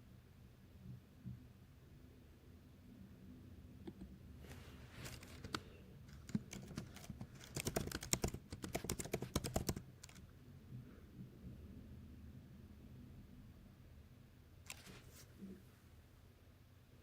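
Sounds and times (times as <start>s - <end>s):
typing on computer keyboard: 5.1s - 10.2s.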